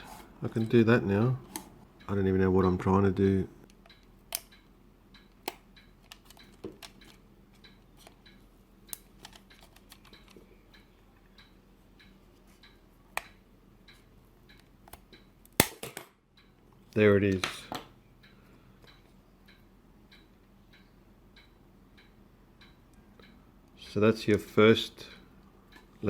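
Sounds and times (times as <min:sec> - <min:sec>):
lens parts clicking: 0:08.9 - 0:10.4.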